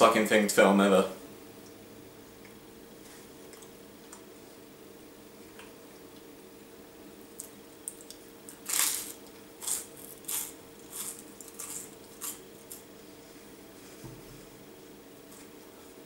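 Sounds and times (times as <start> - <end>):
person crunching toast: 7.4 - 12.9.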